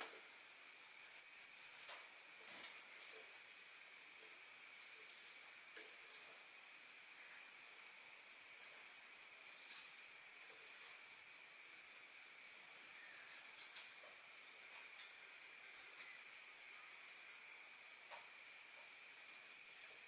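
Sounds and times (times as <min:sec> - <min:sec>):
bird's high descending whistles: 0:09.2 - 0:10.5, 0:12.5 - 0:13.8.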